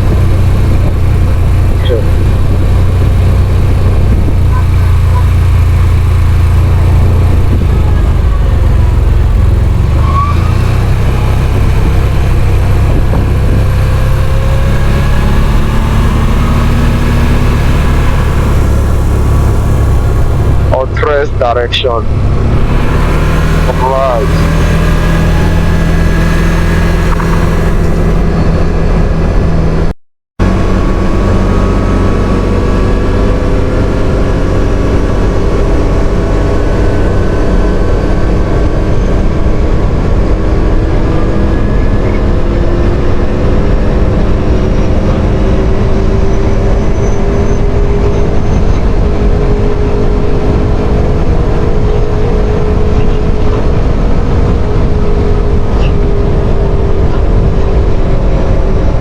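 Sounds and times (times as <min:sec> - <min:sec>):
quad bike engine running: 0:00.0 - 0:59.0
wind rush on microphone: 0:00.0 - 0:59.0.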